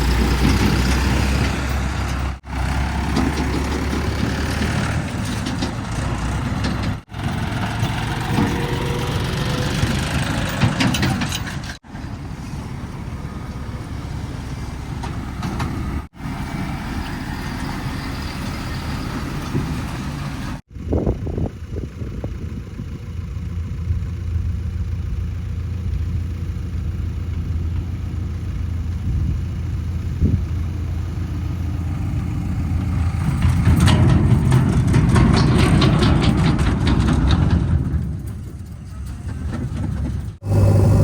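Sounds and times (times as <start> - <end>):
heavy diesel engine running: 0.0 - 41.0
rattling: 32.8 - 40.5.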